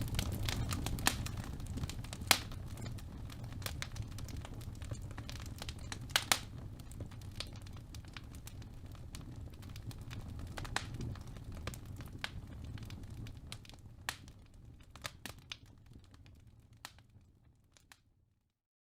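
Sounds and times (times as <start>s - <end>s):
low rumble of flame: 0.0s - 18.4s
fireplace fire crackling and popping: 0.0s - 18.5s.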